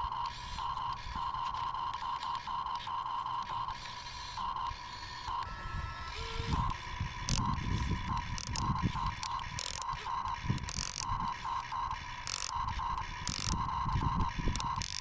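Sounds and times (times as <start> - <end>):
electric gear motors whining: 0.0 - 15.0
sharp click: 6.5 - 11.2, 12.2 - 13.6, 14.5 - 15.0.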